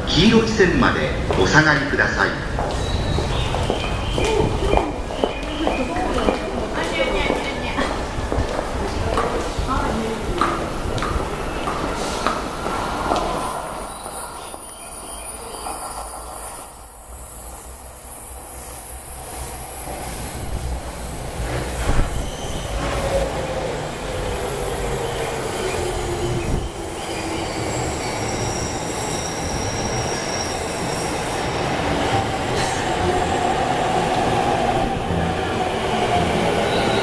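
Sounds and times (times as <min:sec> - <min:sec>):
train wheels rumbling on rails: 0:00.0 - 0:37.0
train wheels squealing: 0:02.7 - 0:04.3, 0:11.4 - 0:16.8, 0:21.5 - 0:23.4, 0:25.0 - 0:33.0, 0:36.4 - 0:37.0.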